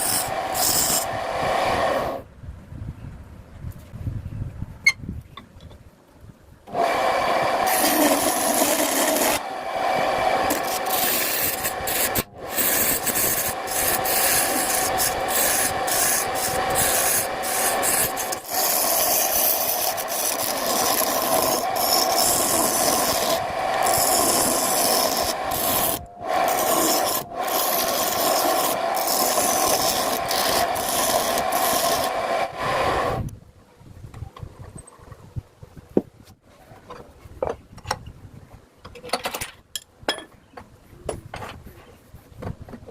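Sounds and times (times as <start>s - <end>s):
wood lathe rasping scrape: 0.0s - 2.2s, 6.7s - 33.2s.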